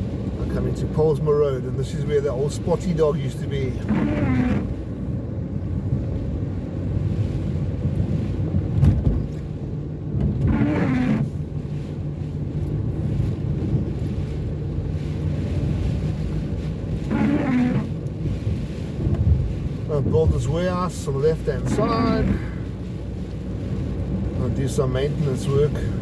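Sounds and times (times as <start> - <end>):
car engine and road rumble: 0.0 - 26.0
car bump: 8.7 - 9.5.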